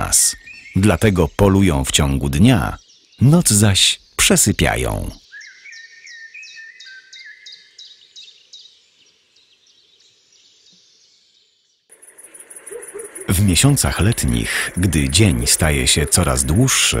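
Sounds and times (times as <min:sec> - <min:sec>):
lower whistled bird notes: 0:05.2 - 0:08.8, 0:09.4 - 0:17.0.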